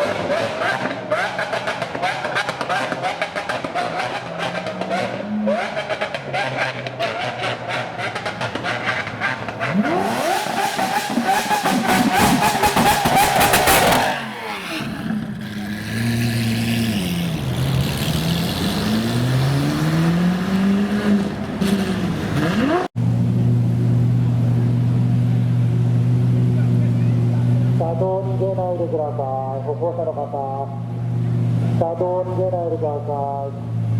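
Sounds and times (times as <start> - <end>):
car engine revving: 0.0 - 33.9
exhaust crackle: 8.1 - 27.9.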